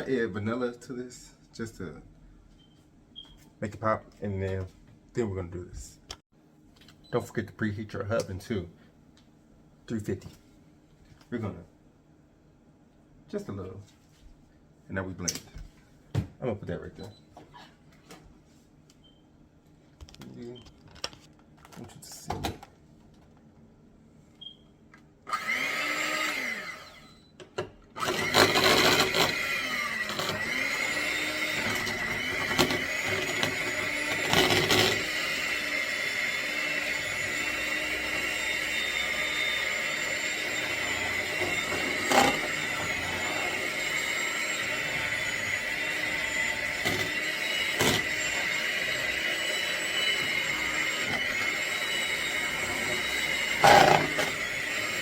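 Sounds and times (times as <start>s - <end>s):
electric blender running: 25.3s - 27.1s, 28.0s - 55.0s.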